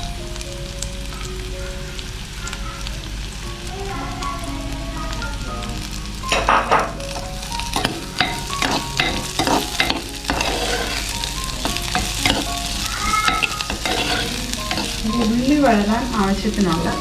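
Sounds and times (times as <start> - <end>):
aromatics sizzling in oil: 0.0 - 17.0
spatula scraping a pan: 7.8 - 15.8.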